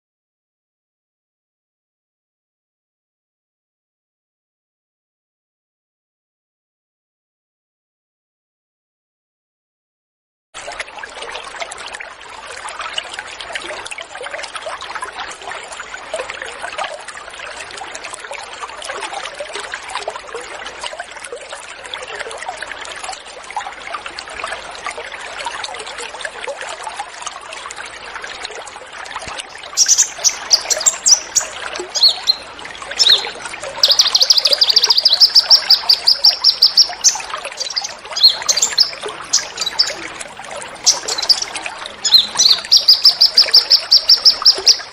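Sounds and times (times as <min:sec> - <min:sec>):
water trickling: 0:10.6 - 0:44.9
songbirds chirping and trilling: 0:29.5 - 0:44.9.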